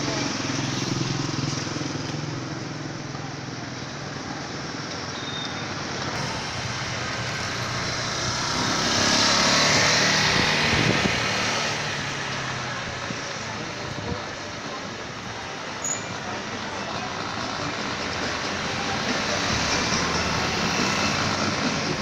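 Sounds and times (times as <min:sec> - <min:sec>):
road traffic rushing hiss: 0:00.0 - 0:22.0
vehicle passing: 0:06.2 - 0:13.1.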